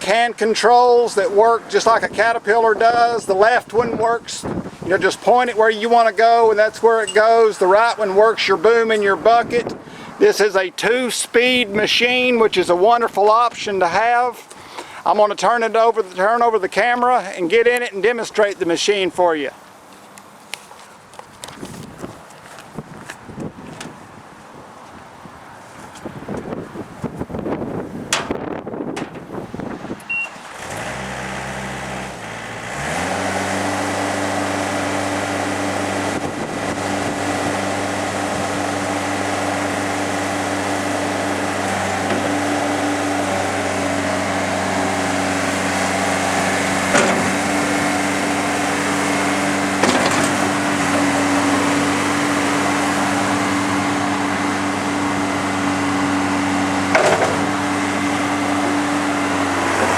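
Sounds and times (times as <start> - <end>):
loader diesel engine running: 28.2 - 59.9
sharp knocks: 46.9 - 47.4, 56.9 - 57.5.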